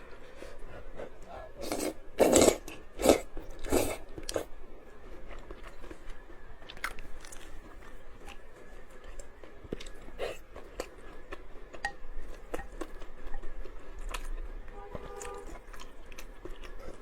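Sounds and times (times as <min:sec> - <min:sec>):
slurping: 0:00.3 - 0:04.5
person chewing with wet clicks: 0:01.2 - 0:17.0.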